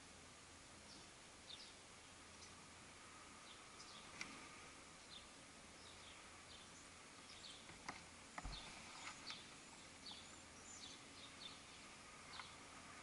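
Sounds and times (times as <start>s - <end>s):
small birds chirping faintly: 0.0s - 13.0s.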